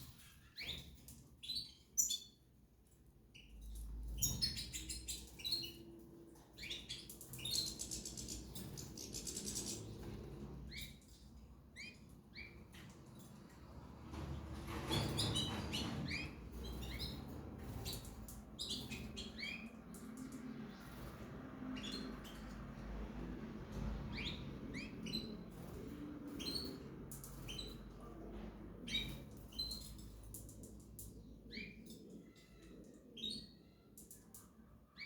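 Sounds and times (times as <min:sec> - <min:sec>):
small birds chirping: 0:00.0 - 0:13.8, 0:14.9 - 0:35.0.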